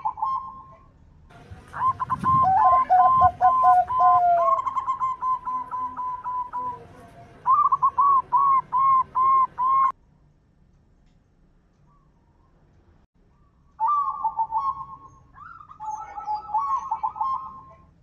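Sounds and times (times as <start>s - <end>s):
doves cooing: 0.0s - 9.9s, 13.8s - 18.0s
lower run of coo notes: 1.5s - 9.9s.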